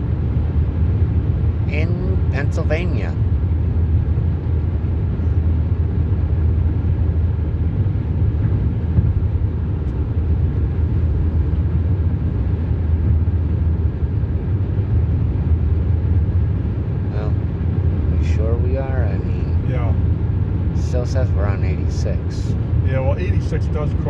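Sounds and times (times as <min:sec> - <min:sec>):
road and engine rumble in cabin: 0:00.0 - 0:24.0.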